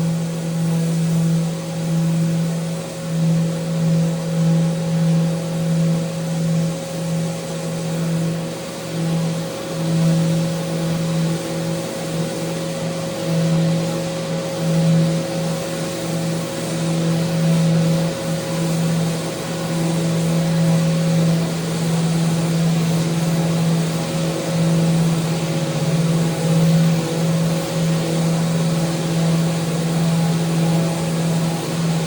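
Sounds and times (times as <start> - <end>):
power sander running: 21.2 - 32.0.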